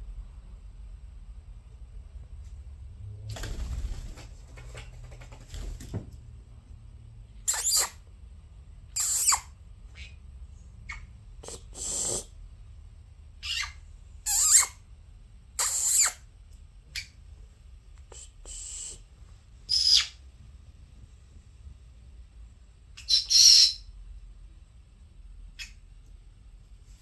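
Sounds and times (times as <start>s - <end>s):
faint low hum: 0.0s - 27.0s
parrots squawking and chirping: 7.5s - 8.0s, 9.0s - 10.2s, 10.9s - 11.1s, 13.4s - 14.8s, 15.6s - 16.2s, 19.7s - 20.2s.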